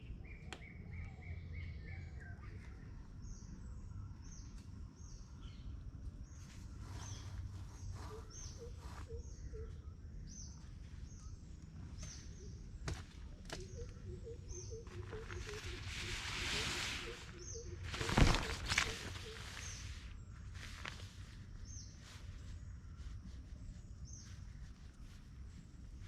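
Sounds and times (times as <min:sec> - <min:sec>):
rustling: 0:14.8 - 0:26.0.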